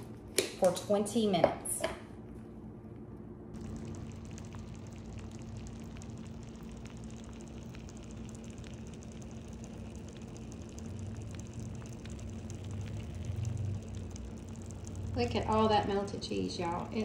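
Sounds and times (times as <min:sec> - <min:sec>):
low electrical hum: 0:00.0 - 0:17.0
soup bubbling in a slow cooker: 0:03.6 - 0:17.0.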